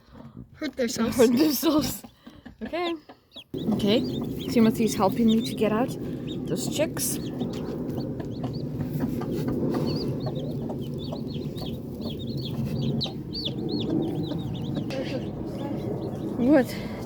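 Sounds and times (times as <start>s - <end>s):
chicks peeping: 0.7s - 17.0s.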